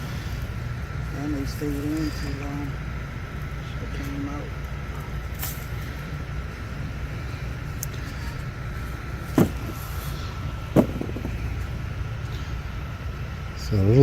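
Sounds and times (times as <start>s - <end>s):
steady low rumble: 0.0s - 14.0s
sharp knocks: 9.3s - 10.0s, 10.7s - 11.6s.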